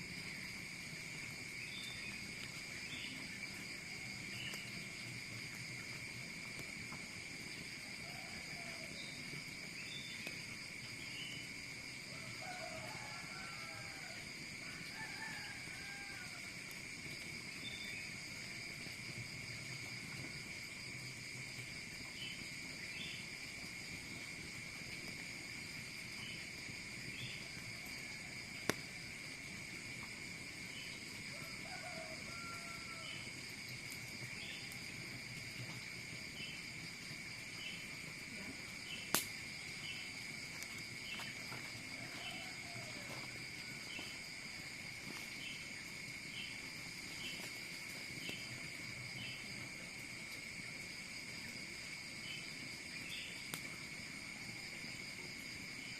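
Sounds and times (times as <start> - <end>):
insect chirps: 0.0 - 55.9
insects buzzing: 0.0 - 55.9
sharp snaps: 39.1 - 39.4.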